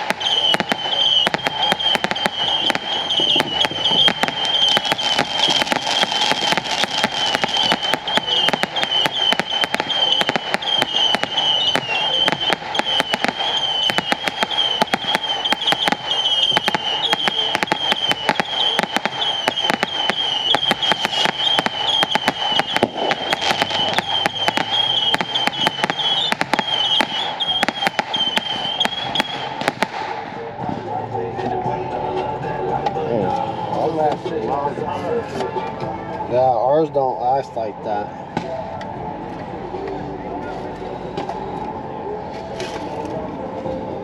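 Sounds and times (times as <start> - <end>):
high wavering whistle: 0.0 - 30.6
fireworks crackling and banging: 0.0 - 31.5.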